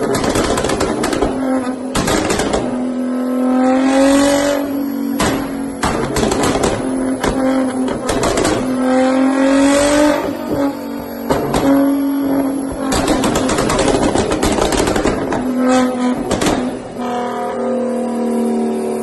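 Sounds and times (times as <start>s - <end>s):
exhaust pops and bangs: 0.0s - 2.9s, 5.1s - 9.0s, 11.3s - 12.0s, 12.7s - 17.0s
car engine revving hard: 0.0s - 19.0s.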